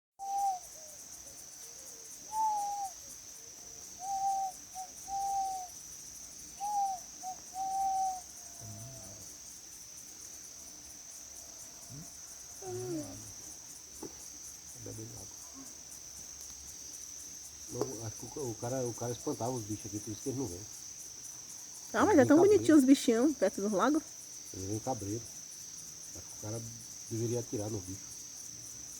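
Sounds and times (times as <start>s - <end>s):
bird hooting calls: 0.2s - 0.7s, 2.3s - 3.0s, 4.0s - 5.8s, 6.6s - 9.2s
insects chirring: 0.2s - 28.9s.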